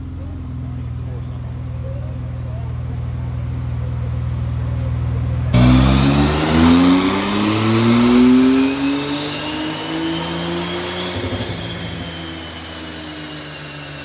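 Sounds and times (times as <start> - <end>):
car engine under full load: 0.0 - 14.0
steady engine drone: 0.0 - 14.0
high whine: 5.6 - 14.0.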